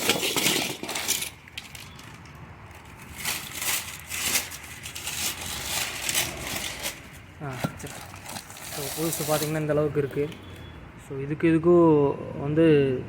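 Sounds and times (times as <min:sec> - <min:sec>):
crinkling and rustling: 0:00.0 - 0:10.7.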